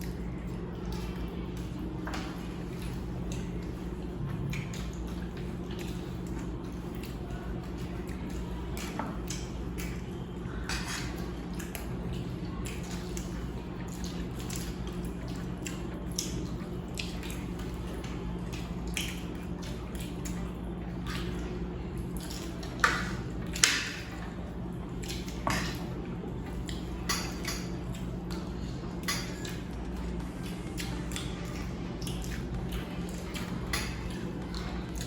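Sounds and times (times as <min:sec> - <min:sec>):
steady low hum: 0:00.0 - 0:35.0
metal spoons clinking on plates: 0:27.0 - 0:28.0.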